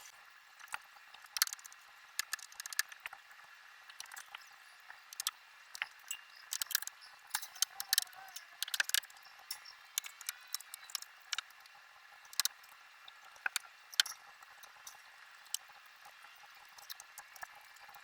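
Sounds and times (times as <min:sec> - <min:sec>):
small hard objects clicking: 0:00.6 - 0:03.2, 0:05.1 - 0:11.6, 0:12.3 - 0:12.6, 0:13.4 - 0:15.7.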